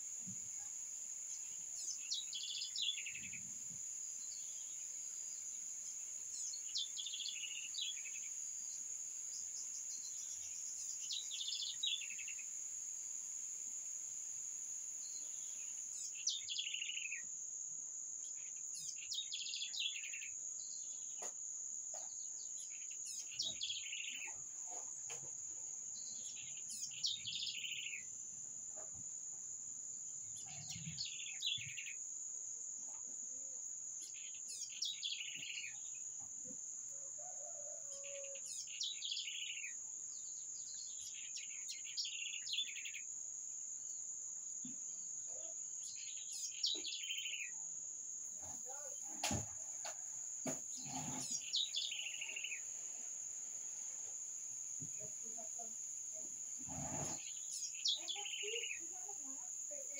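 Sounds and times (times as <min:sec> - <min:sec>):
songbird singing: 0:00.0 - 0:17.3, 0:18.2 - 0:29.0, 0:30.2 - 0:32.1, 0:34.0 - 0:43.2, 0:43.8 - 0:59.9
high-pitched insect trill: 0:00.0 - 0:17.4, 0:26.0 - 0:28.4, 0:33.3 - 0:36.2, 0:36.9 - 0:44.1, 0:44.9 - 0:59.9.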